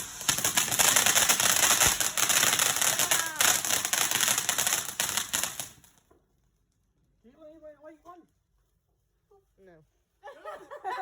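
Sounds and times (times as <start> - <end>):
firework crackling: 0.0 - 6.1.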